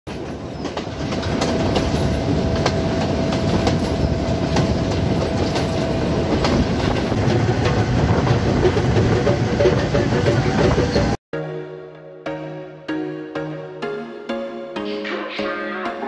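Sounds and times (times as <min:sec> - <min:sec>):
train rumbling: 0:00.1 - 0:11.2.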